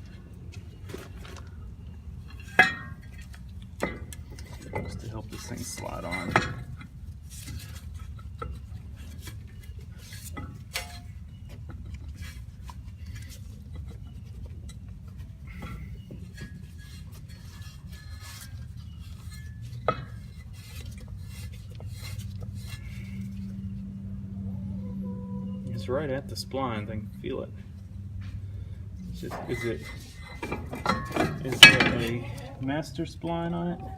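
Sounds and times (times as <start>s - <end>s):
metal clinks and scrapes: 2.2s - 24.0s, 26.8s - 32.6s
low hum: 7.6s - 33.9s.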